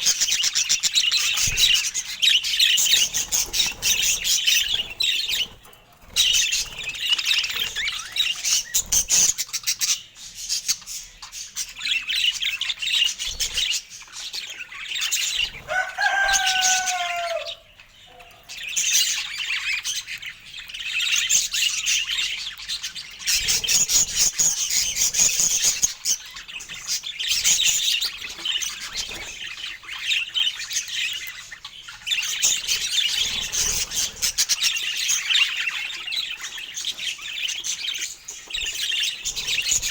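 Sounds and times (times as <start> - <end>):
budgerigars chattering: 0.0 - 39.9
lower falling bird call: 15.6 - 17.7.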